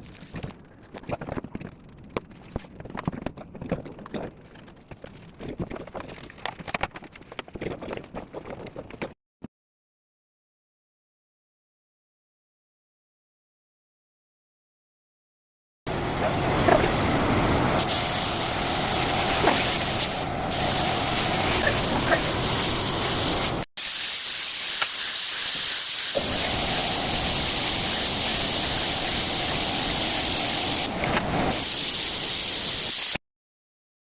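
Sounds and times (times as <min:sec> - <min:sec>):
paint sprayer hissing: 0:17.8 - 0:33.2.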